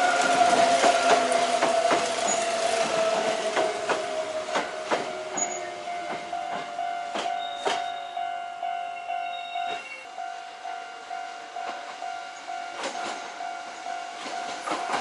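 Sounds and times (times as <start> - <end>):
train wheels clacking over joints: 0.0 - 8.1, 12.7 - 15.0
electric train whine: 0.0 - 15.0.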